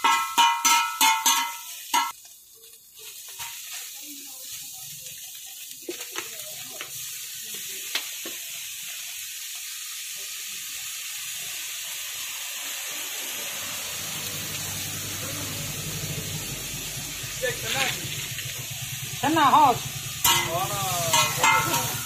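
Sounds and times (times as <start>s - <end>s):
egg sizzling in a wok: 0.0s - 22.0s
metal ladle clicking on wok: 20.2s - 20.5s.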